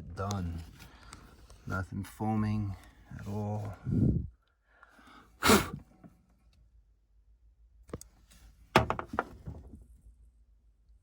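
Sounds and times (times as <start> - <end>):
object thump: 8.8 - 9.8.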